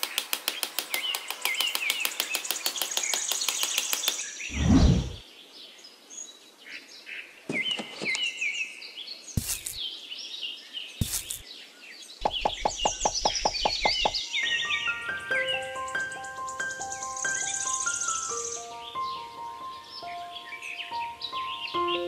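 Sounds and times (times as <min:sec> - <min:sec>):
quick run of taps: 0:00.0 - 0:04.3, 0:12.2 - 0:14.2
small birds chirping: 0:00.0 - 0:22.0
sharp knocks: 0:12.2 - 0:14.2.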